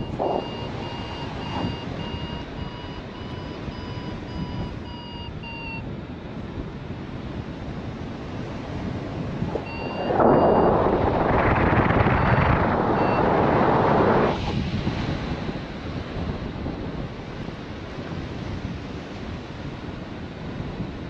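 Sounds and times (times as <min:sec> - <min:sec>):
faint high beeps: 0:00.0 - 0:05.8, 0:09.6 - 0:14.3
wind buffeting microphone: 0:00.0 - 0:21.0.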